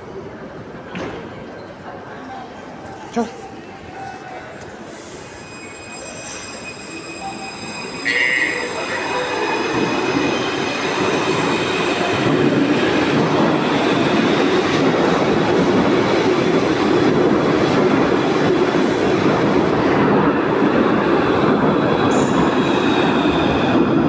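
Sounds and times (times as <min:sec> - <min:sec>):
train wheels rumbling on rail: 0:04.3 - 0:24.0
thin high squeal: 0:05.0 - 0:09.0.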